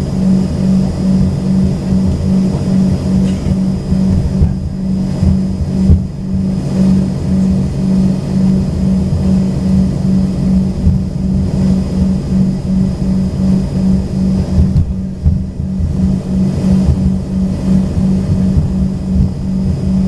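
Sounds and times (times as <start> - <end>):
faint high whine: 0.0 - 20.0
jet engines droning in cabin: 0.0 - 20.0.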